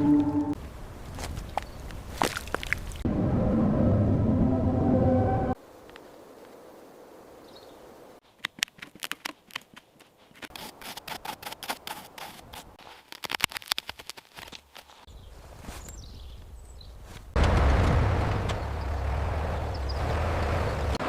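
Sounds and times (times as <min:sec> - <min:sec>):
leaves and twigs crackling: 0:00.5 - 0:03.0, 0:05.6 - 0:19.2.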